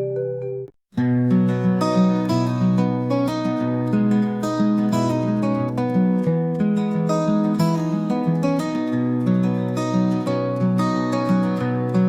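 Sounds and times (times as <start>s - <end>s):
soft plucked melody: 0.0s - 12.0s
strummed acoustic guitar: 1.0s - 12.0s.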